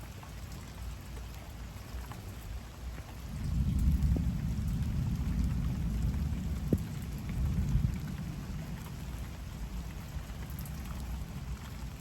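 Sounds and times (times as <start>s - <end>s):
heavy rain pouring: 2.8s - 12.0s.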